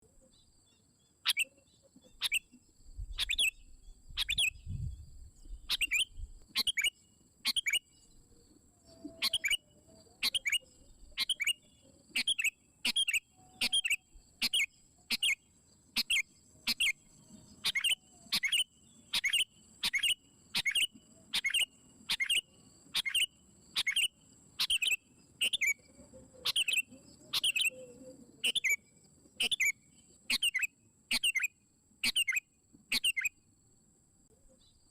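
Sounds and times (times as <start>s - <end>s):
bird calling with sharp notes: 1.2s - 8.0s, 8.9s - 15.4s, 16.0s - 28.8s, 29.4s - 33.4s
faint steady high tone: 13.2s - 14.2s.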